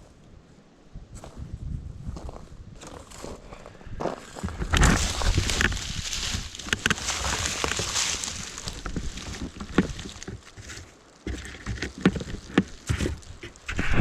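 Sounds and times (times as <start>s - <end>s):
wind on microphone: 0.9s - 10.3s, 11.3s - 14.0s
bike rolling on dirt road: 2.1s - 14.0s
bike frame rattling over bumps: 4.4s - 13.8s.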